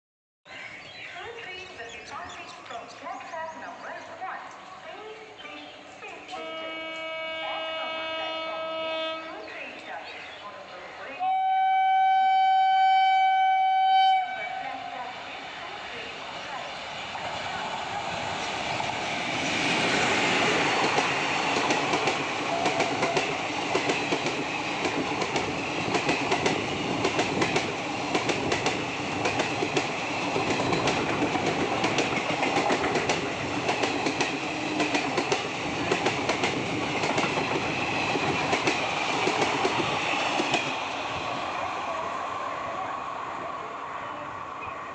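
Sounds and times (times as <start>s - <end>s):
train wheels rumbling on rails: 15.2s - 43.3s
wheels clacking over rail joints: 19.6s - 40.9s.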